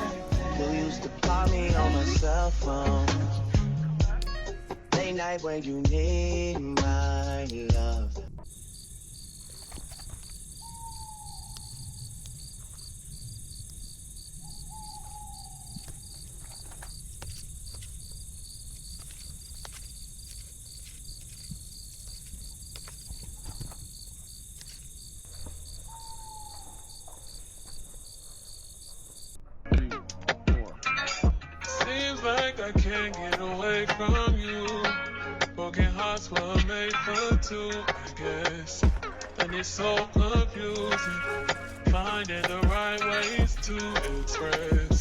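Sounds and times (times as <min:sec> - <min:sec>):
insects chirring: 0:00.0 - 0:02.5, 0:04.2 - 0:29.4, 0:36.0 - 0:45.0
faint clicks: 0:09.4 - 0:29.2
bird short falling call: 0:09.8 - 0:12.8, 0:14.3 - 0:17.1, 0:25.6 - 0:28.0.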